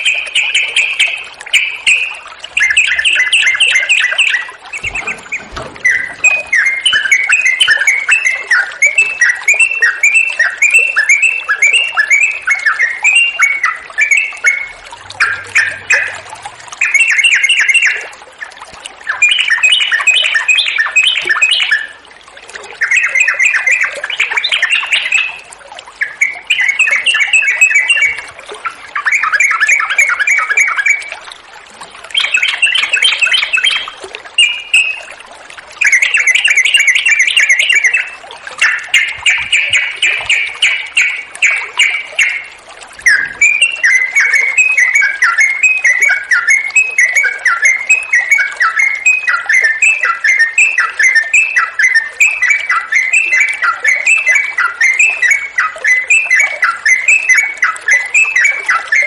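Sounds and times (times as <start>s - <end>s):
bulbul singing bubbly phrases: 0.0s - 59.0s.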